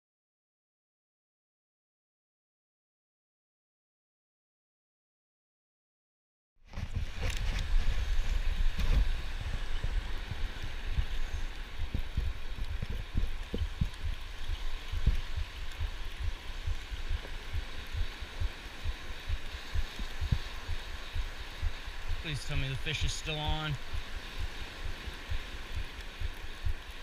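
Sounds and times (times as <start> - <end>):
ocean surf washing: 6.7 - 27.0
wind buffeting the microphone: 6.7 - 27.0.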